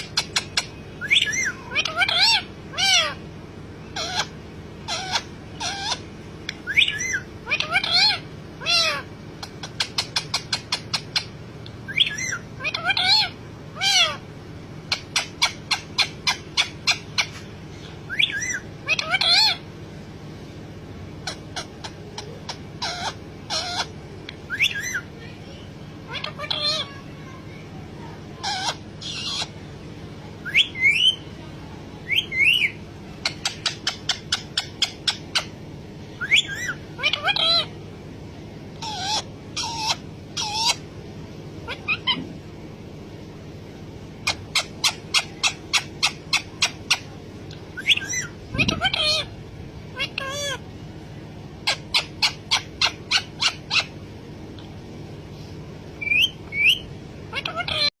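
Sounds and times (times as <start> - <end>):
parrot pitched calls: 0.0 - 19.7, 21.2 - 27.1, 28.3 - 29.7, 30.4 - 31.3, 32.0 - 37.8, 38.7 - 40.9, 41.6 - 42.4, 44.2 - 50.8, 51.4 - 54.8, 56.0 - 58.0
parrot rising call: 38.8 - 40.8, 41.6 - 42.3.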